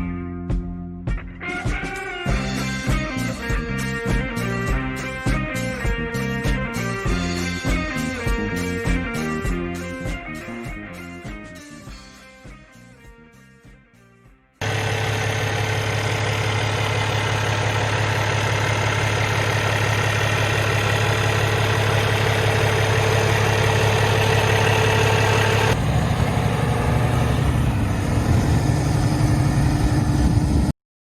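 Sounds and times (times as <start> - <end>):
diesel truck engine idling: 14.6 - 30.7.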